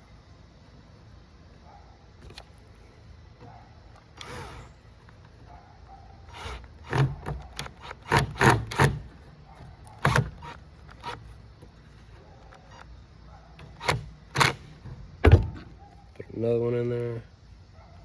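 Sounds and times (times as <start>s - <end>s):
knocks and scrapes of frame parts: 13.6s - 16.1s.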